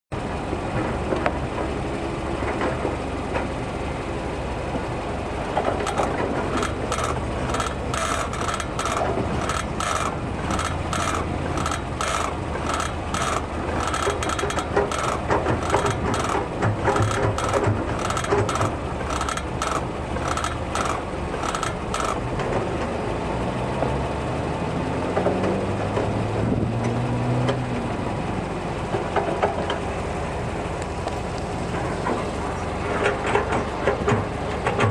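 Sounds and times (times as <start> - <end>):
engine hum: 0.1 - 34.9
brake caliper creaking: 5.5 - 23.0.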